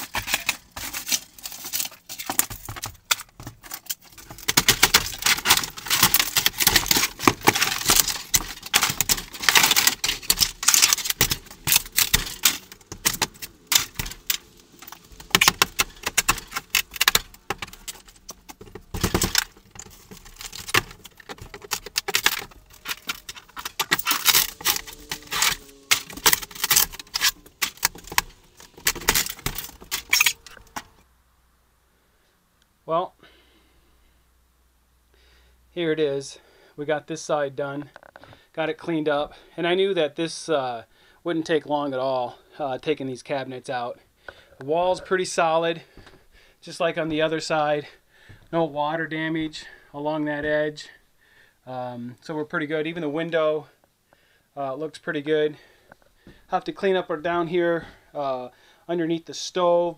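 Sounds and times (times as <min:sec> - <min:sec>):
wooden cabinet parts clattering: 0:00.0 - 0:31.0.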